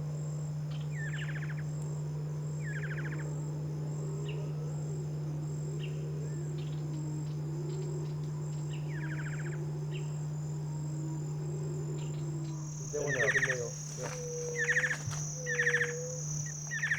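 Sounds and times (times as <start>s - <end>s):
insects chirring: 0.0s - 16.9s
steady low hum: 0.0s - 16.9s
rapid rattling bird trill: 12.6s - 16.9s
short bird calls: 12.6s - 16.9s.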